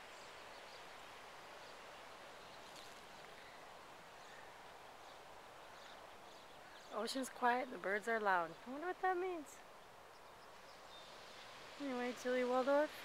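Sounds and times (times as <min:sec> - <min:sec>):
outdoor background hiss: 0:00.0 - 0:13.0
small birds chirping: 0:00.0 - 0:13.0.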